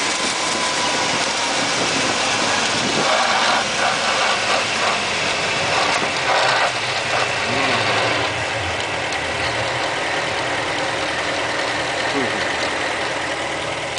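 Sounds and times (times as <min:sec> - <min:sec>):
vehicle engine running: 0:00.0 - 0:13.9
mechanical gear noise: 0:02.6 - 0:13.3.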